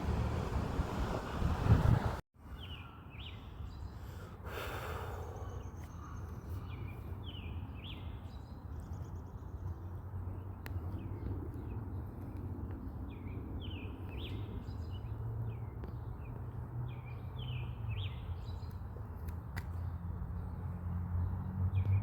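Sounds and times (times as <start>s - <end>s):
low outdoor rumble: 0.0s - 2.2s
birds chirping: 0.0s - 12.4s.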